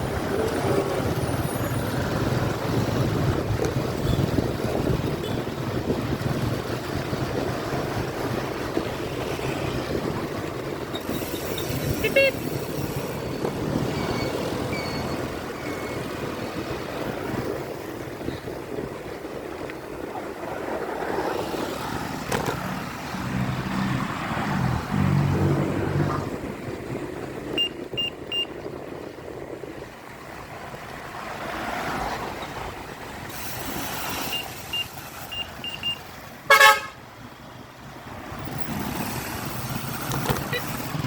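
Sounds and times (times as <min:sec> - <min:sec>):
road traffic passing: 0:00.0 - 0:41.0
short high beeps: 0:11.0 - 0:13.1, 0:27.6 - 0:28.5, 0:33.4 - 0:36.0, 0:40.4 - 0:41.0
vehicle horn toot: 0:11.9 - 0:12.6, 0:35.7 - 0:37.0.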